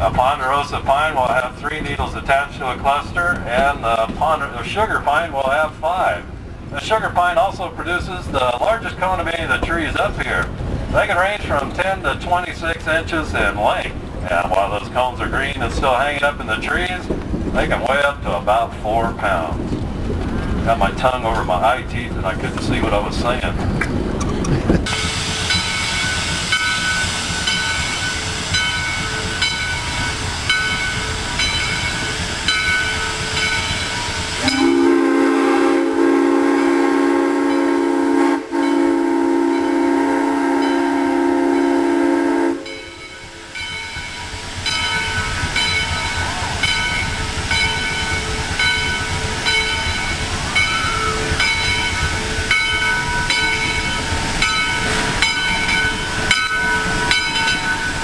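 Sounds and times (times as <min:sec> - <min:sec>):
steam train knocking and rattling: 0:00.0 - 0:58.0
loud steam whistle blast: 0:24.9 - 0:27.3, 0:34.2 - 0:43.4.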